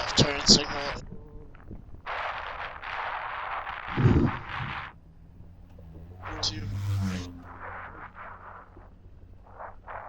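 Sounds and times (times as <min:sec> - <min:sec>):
wind and road noise on helmet: 0:00.0 - 0:10.0.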